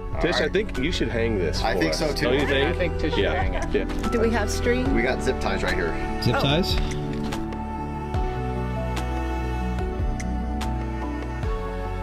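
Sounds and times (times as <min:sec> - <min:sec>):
slow soft instrumental music: 0:00.0 - 0:12.0.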